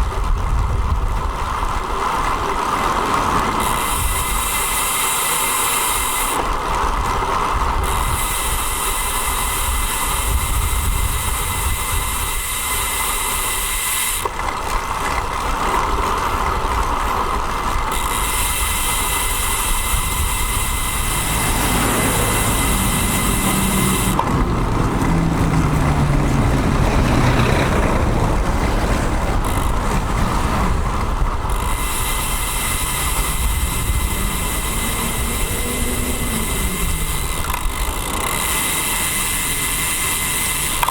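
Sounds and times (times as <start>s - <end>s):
wind rumble on microphone: 0.0s - 4.8s, 6.0s - 13.0s, 15.0s - 40.9s
motor vehicle passing: 19.0s - 40.9s.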